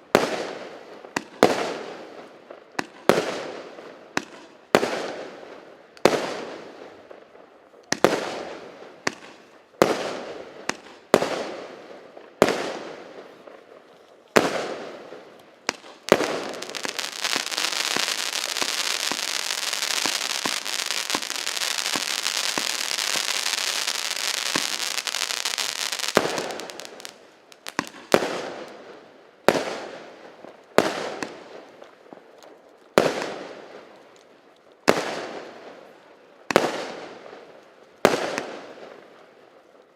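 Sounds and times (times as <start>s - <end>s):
dense firework crackling: 14.4s - 28.8s
firework shots banging: 15.6s - 28.4s.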